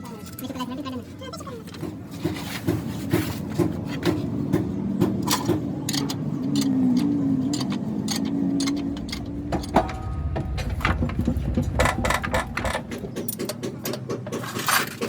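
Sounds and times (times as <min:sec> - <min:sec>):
sharp metallic clicks and knocks: 0:03.6 - 0:15.0
machine motor humming: 0:07.4 - 0:14.0.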